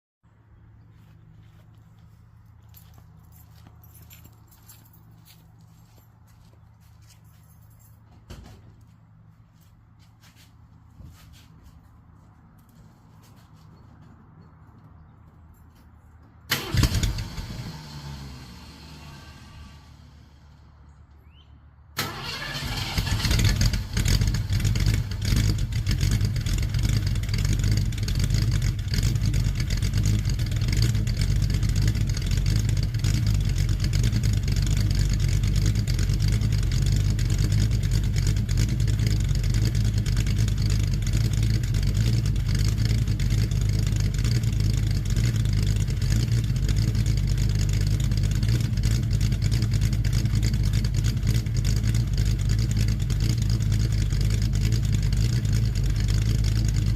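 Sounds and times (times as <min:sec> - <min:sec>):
car engine starting and idling: 0:12.3 - 0:56.9.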